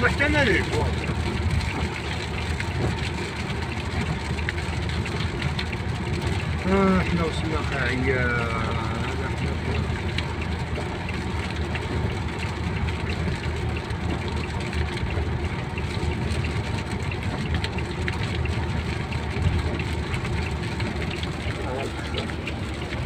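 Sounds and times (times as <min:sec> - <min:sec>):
car engine rumbling: 0:00.0 - 0:23.0.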